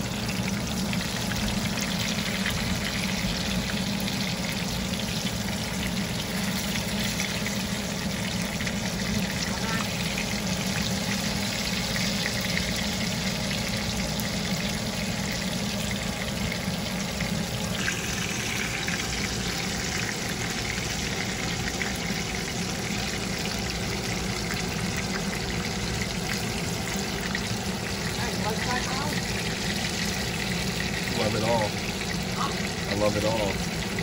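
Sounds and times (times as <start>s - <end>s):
chicken sizzling in hot oil: 0.0s - 34.0s.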